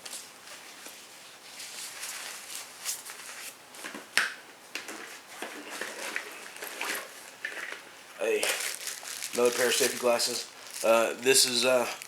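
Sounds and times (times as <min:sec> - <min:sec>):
gear rustling in a bag: 0:05.8 - 0:11.9.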